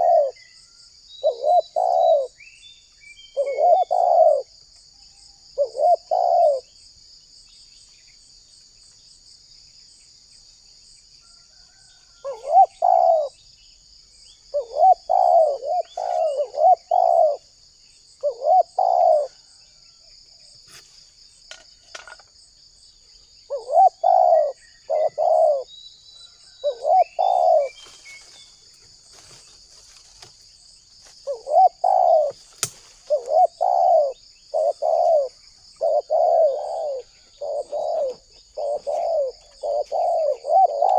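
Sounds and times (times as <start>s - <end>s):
dove cooing: 0.0s - 0.4s, 1.2s - 2.4s, 3.3s - 4.6s, 5.6s - 6.7s, 11.7s - 13.4s, 14.5s - 17.5s, 18.2s - 19.6s, 23.5s - 25.7s, 26.6s - 28.0s, 31.2s - 40.9s
high insect buzz: 26.8s - 40.9s.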